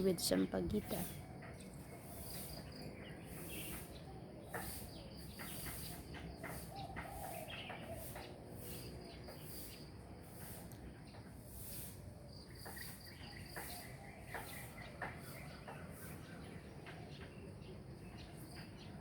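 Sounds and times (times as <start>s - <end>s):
bird chirps: 12.3s - 19.0s.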